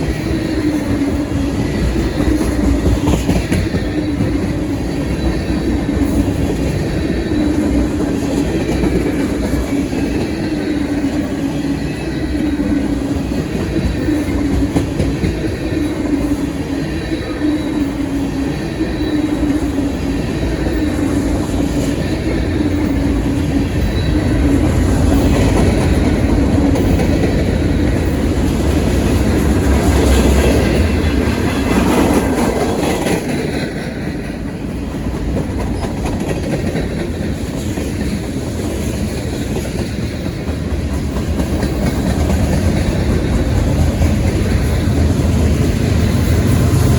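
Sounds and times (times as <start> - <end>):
freight train rolling past: 0.0 - 46.9
wheels clacking over rail joints: 0.0 - 46.9.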